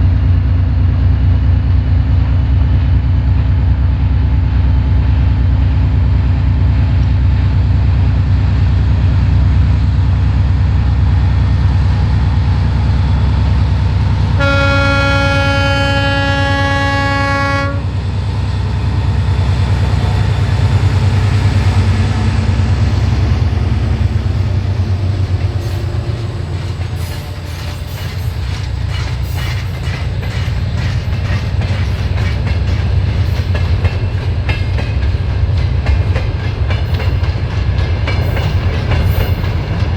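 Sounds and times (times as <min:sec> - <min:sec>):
diesel locomotive engine drone: 0:00.0 - 0:39.9
locomotive horn blast: 0:14.3 - 0:18.0
train wheels clacking over rail joints: 0:14.4 - 0:39.9.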